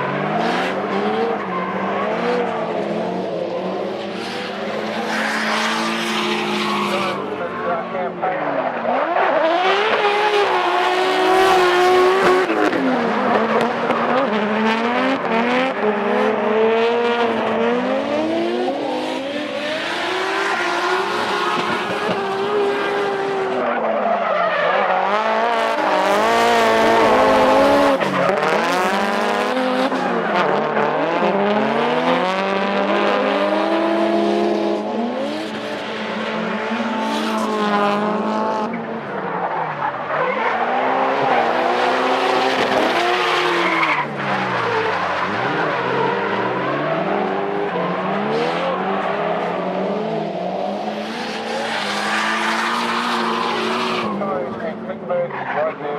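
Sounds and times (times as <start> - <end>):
car engines revving: 0.0 - 55.9
tyre squeal and skidding: 19.5 - 28.8, 39.1 - 49.2, 51.1 - 54.2.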